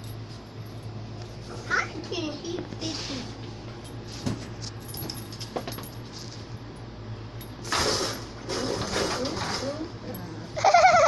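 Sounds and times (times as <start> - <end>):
collar tags jingling: 4.8 - 7.6.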